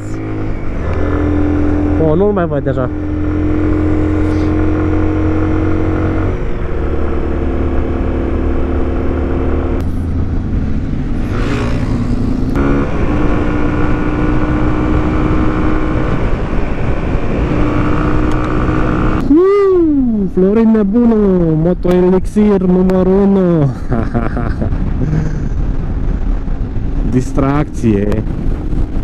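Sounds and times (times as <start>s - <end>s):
motorcycle engine cruising: 0.0s - 19.4s
wind noise: 0.0s - 29.0s.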